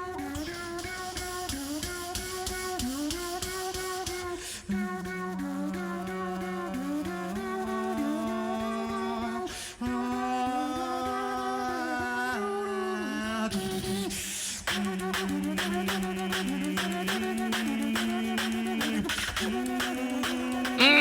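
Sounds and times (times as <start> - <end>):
beatbox bass hum: 0.3 - 9.1, 13.5 - 21.0
rhythmic mouth clicks: 13.5 - 21.0
sung melody line: 20.8 - 21.0.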